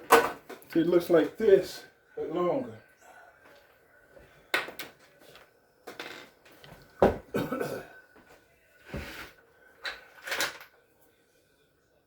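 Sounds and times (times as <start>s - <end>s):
hard objects knocking and clattering: 7.0s - 7.4s.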